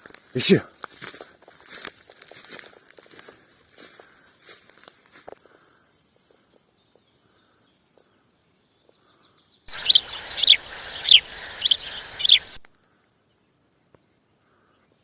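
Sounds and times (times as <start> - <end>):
bird whistling downward notes: 9.7 - 12.6
hiss: 9.7 - 12.6.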